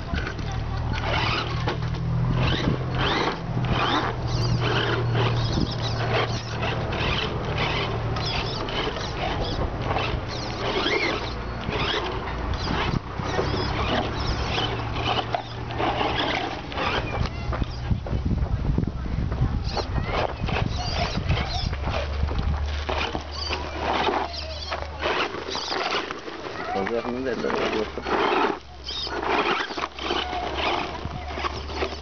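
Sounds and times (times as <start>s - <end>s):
low steady motor hum: 0.0s - 32.0s
toy truck tyres crunching on dirt: 0.0s - 32.0s.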